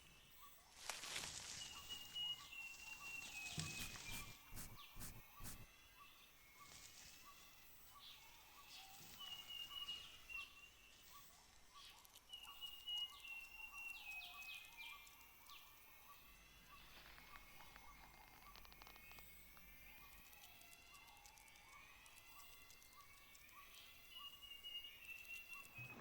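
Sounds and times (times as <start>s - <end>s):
leaves rustling: 0.8s - 1.7s, 3.6s - 5.6s.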